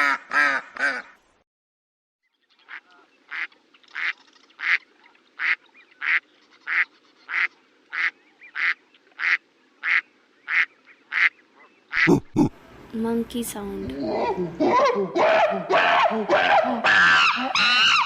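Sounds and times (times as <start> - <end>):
duck quacking: 5.4 - 11.3, 11.9 - 12.5.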